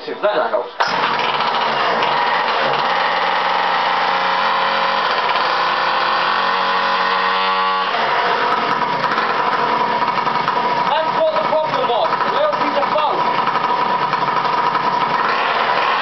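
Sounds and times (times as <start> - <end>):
two-stroke engine running: 0.8 - 16.0.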